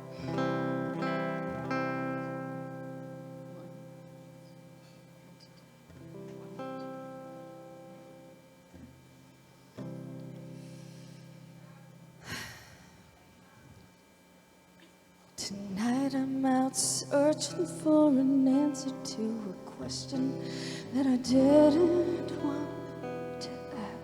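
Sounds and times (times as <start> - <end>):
acoustic guitar strumming chords: 0.0 - 9.0, 15.8 - 24.0.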